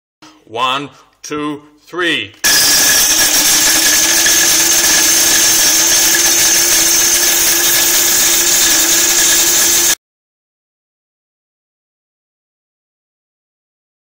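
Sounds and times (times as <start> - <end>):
coffee grinder motor whine: 2.4 - 10.0.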